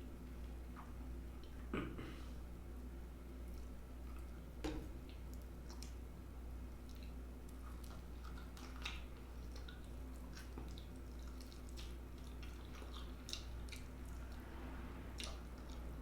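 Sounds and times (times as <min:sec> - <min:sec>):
person chewing food: 0:03.4 - 0:06.1, 0:06.7 - 0:16.0.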